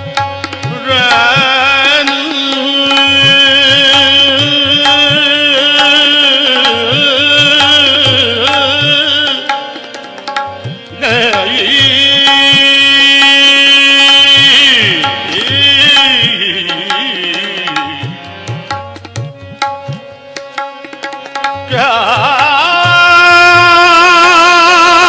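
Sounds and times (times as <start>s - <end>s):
person singing ornamented notes: 0.0s - 10.1s, 10.8s - 18.5s
tabla strokes: 0.0s - 25.0s.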